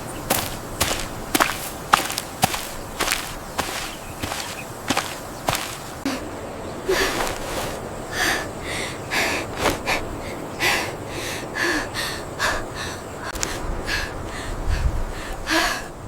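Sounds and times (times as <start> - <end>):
person breathing hard: 6.9 - 16.0.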